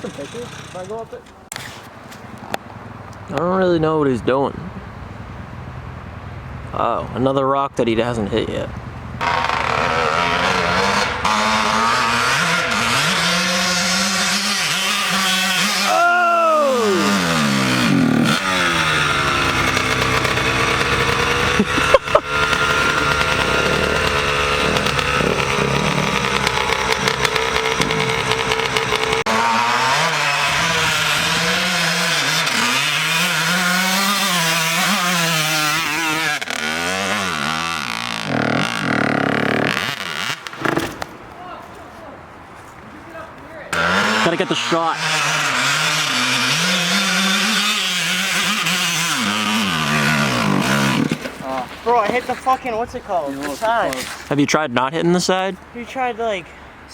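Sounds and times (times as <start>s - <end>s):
dirt bike engine revving: 0.0s - 1.8s, 8.4s - 41.3s, 43.7s - 54.1s.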